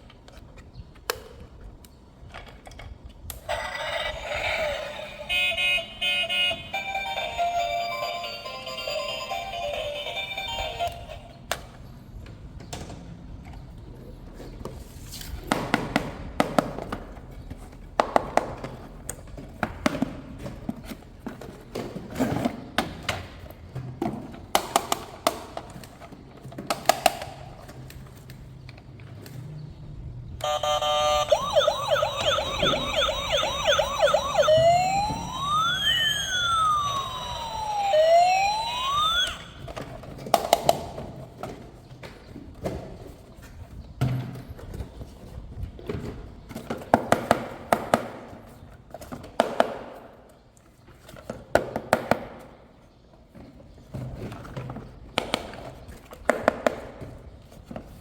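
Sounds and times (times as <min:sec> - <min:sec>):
toy electronic siren: 0:03.5 - 0:11.3, 0:30.4 - 0:39.8.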